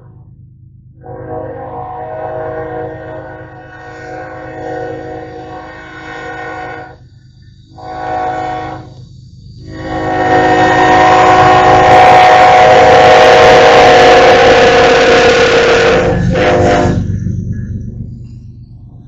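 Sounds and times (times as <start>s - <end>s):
train rumble and rail noise: 0.0s - 19.0s
locomotive horn blasts: 1.0s - 7.0s, 7.7s - 9.0s, 9.6s - 17.2s.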